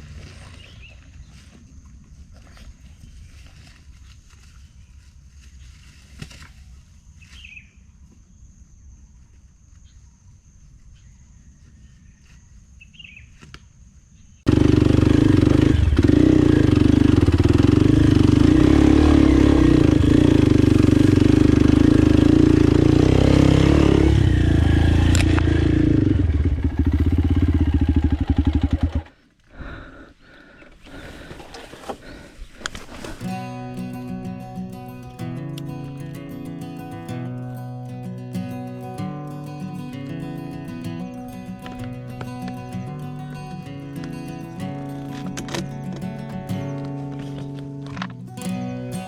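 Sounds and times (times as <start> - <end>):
dirt bike engine running: 14.5 - 29.2, 38.6 - 49.0.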